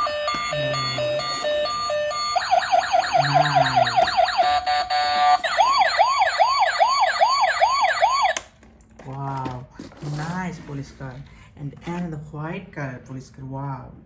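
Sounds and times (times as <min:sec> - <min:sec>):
toy siren: 0:00.0 - 0:08.4.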